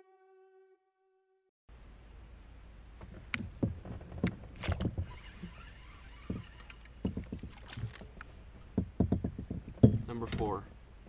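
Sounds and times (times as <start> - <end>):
outdoor background hiss: 1.7 - 11.0
gear knocking in a kayak: 3.0 - 10.7.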